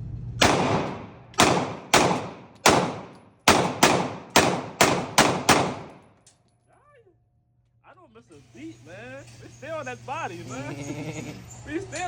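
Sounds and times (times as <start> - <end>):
gunshots echoing: 0.4 - 6.1.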